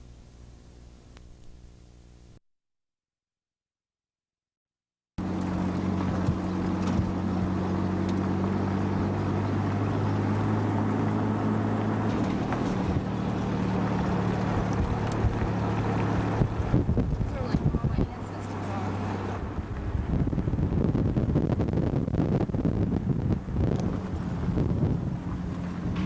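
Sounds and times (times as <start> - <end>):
engine running with low hum: 0.0 - 2.4, 5.2 - 26.0
wind noise on microphone: 5.4 - 26.0.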